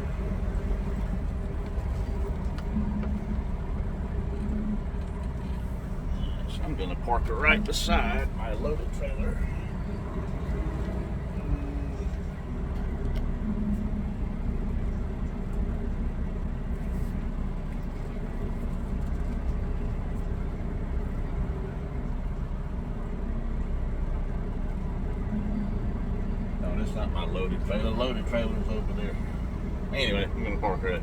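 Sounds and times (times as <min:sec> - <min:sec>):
diesel truck engine rumbling: 0:00.0 - 0:31.0.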